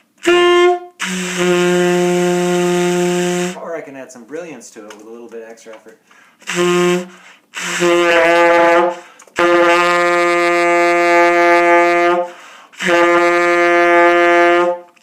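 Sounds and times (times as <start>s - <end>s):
tenor saxophone holding a note: 0.2s - 3.6s, 6.4s - 15.0s.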